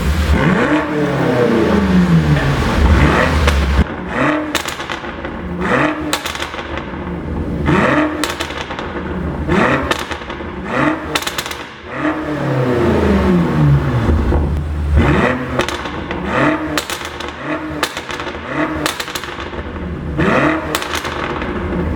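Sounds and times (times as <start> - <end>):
car engine revving: 0.0 - 21.9
exhaust pops and crackles: 1.8 - 12.3, 13.9 - 21.9.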